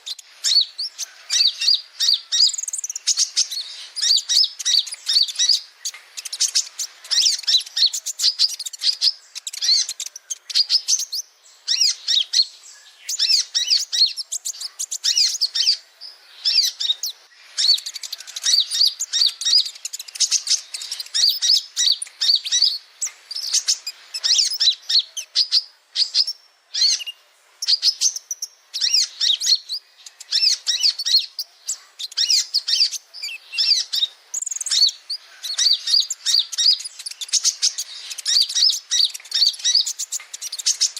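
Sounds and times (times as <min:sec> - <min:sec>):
sunbird chirping and twittering: 0:00.0 - 0:40.9.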